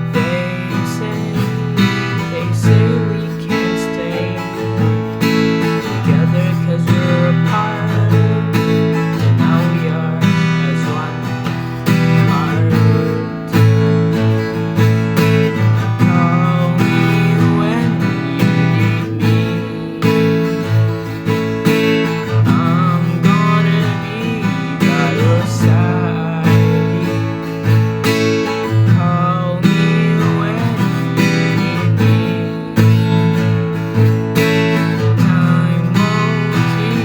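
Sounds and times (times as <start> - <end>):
strummed acoustic guitar: 0.0 - 37.0
wavering melody line: 15.0 - 27.4.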